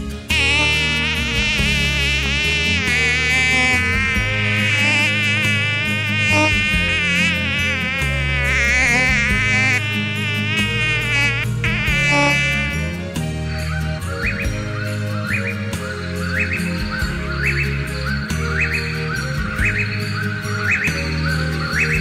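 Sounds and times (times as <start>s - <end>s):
low steady music notes: 0.0s - 22.0s
wavering loud buzz: 0.2s - 13.1s.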